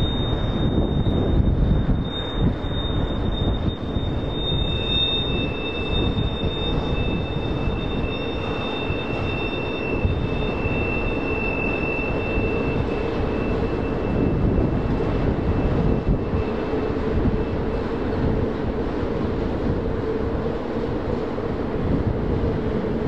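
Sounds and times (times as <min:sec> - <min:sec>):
thin high squeal: 0:00.0 - 0:18.4
freight train rumbling on rails: 0:00.0 - 0:23.0.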